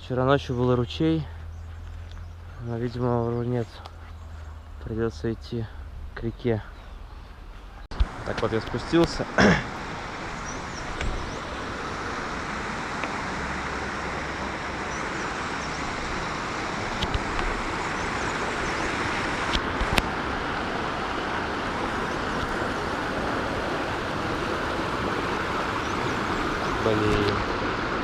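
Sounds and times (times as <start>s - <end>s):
river rushing: 8.0s - 28.0s.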